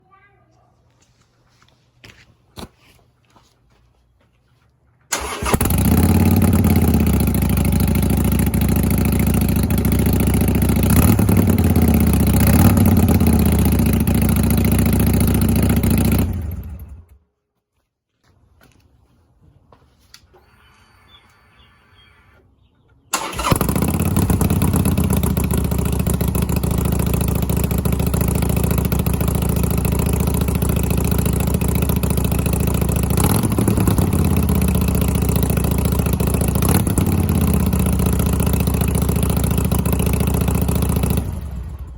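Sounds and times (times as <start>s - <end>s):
motorcycle engine idling: 5.2s - 17.2s, 23.2s - 41.9s.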